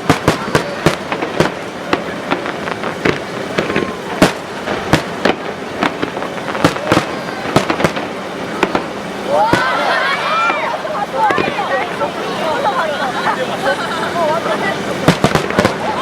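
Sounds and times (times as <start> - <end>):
fireworks bangs and pops: 0.0 - 9.8, 10.4 - 11.6, 15.0 - 16.0.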